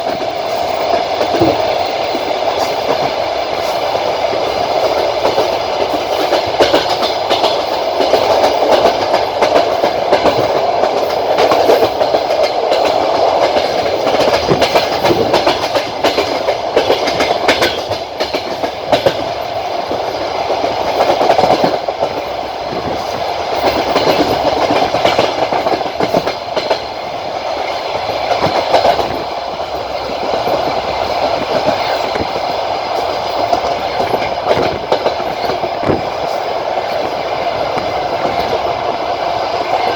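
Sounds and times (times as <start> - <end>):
wheels clattering over rail joints: 0.0 - 3.8, 4.8 - 20.1
train coach rumble: 0.0 - 39.9.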